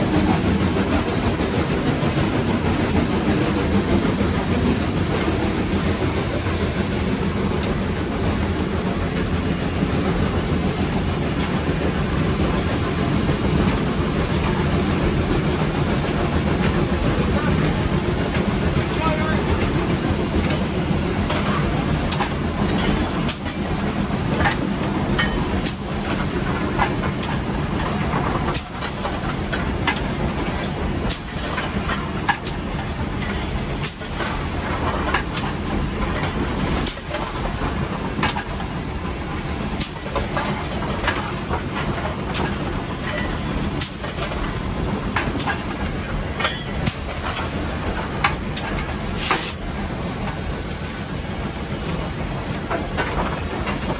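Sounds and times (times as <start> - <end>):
steam locomotive hiss and rumble: 0.0 - 53.9.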